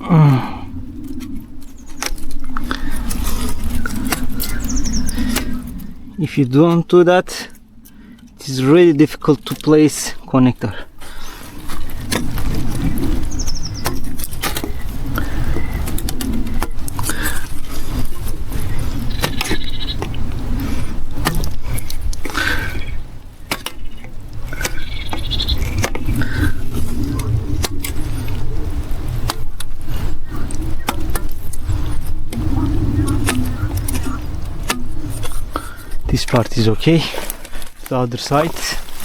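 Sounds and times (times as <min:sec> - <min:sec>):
steady low rumble: 0:00.0 - 0:39.0
hand tool scraping plastic pipe: 0:01.2 - 0:05.9, 0:11.0 - 0:39.0
small bird chirping: 0:03.7 - 0:06.0, 0:12.8 - 0:15.8, 0:18.6 - 0:20.0, 0:22.7 - 0:27.4.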